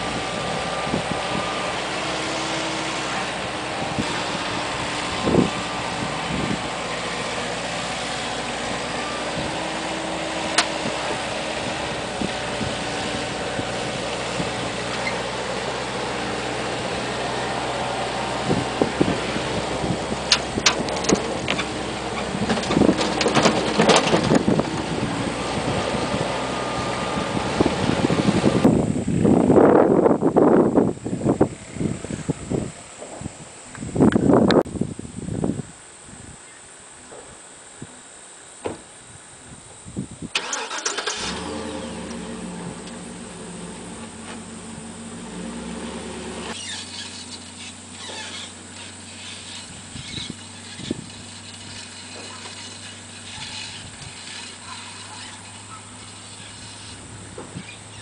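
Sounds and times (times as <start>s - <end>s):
tractor engine running: 0.0s - 34.8s, 40.2s - 58.0s
rattles and knocks: 20.3s - 25.1s.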